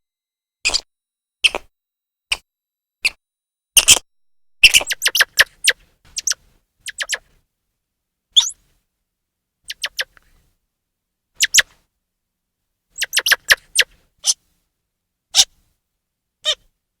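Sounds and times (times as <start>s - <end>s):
squirrel chirping: 4.6s - 7.2s, 8.4s - 8.6s, 9.7s - 10.2s, 11.4s - 11.6s, 13.0s - 14.4s.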